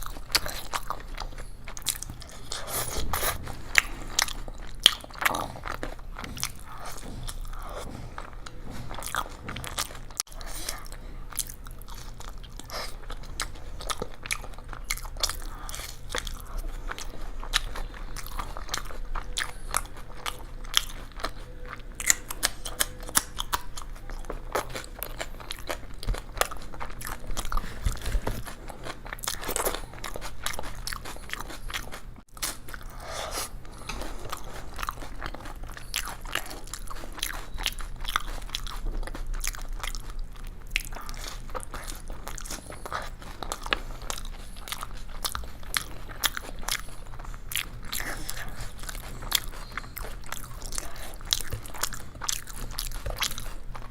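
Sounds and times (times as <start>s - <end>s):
person crunching crisp food: 0.0s - 53.9s.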